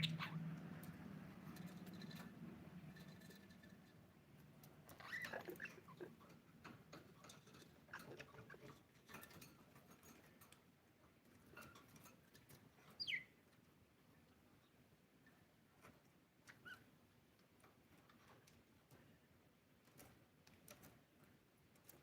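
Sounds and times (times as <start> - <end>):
budgerigar chirps: 0.0 - 0.4
soft scratching and clicking: 0.0 - 22.0.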